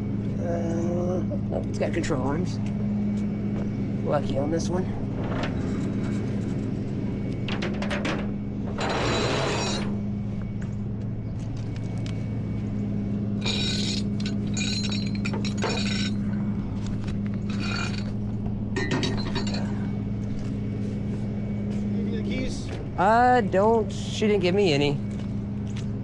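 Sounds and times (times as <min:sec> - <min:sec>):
metal chains clinking and rattling: 0:07.5 - 0:10.0, 0:13.4 - 0:19.9.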